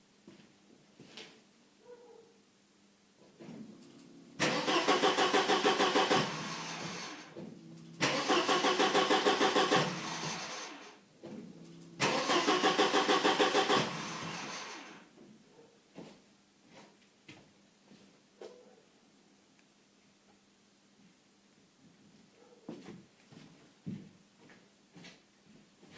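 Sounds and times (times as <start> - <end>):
car engine cranking on starter: 3.7 - 15.0.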